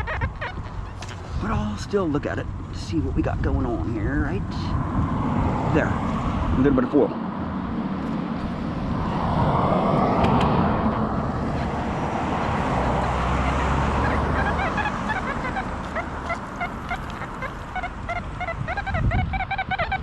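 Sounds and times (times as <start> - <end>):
geese honking: 0.0 - 1.4, 11.4 - 20.0
broad rushing noise: 3.1 - 19.1.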